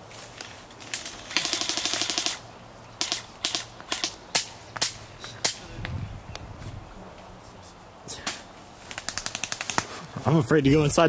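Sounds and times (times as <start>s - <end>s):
airsoft guns firing: 1.0s - 2.4s, 3.0s - 5.6s, 8.9s - 10.0s.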